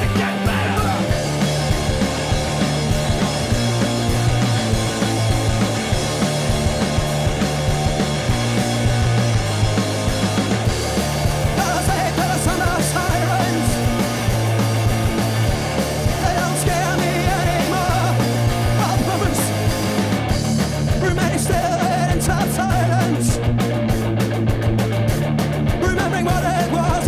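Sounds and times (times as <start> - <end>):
shouted vocals: 0.0 - 1.2
bass line: 0.0 - 27.0
distorted electric guitars: 0.0 - 27.0
drums and cymbals: 0.0 - 27.0.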